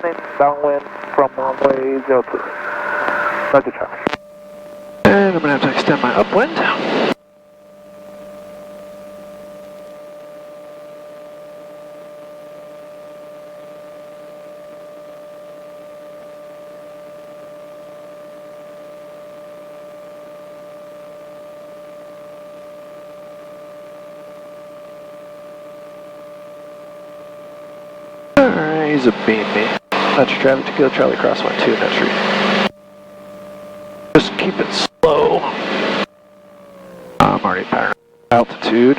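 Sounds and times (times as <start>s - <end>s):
aircraft cockpit hum: 0.0s - 10.9s, 28.3s - 38.9s.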